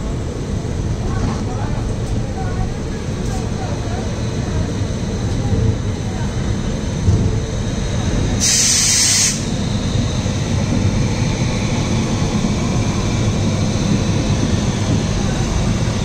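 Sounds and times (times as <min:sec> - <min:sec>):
train rumbling on track: 0:00.0 - 0:16.0
loud hiss: 0:08.4 - 0:09.6.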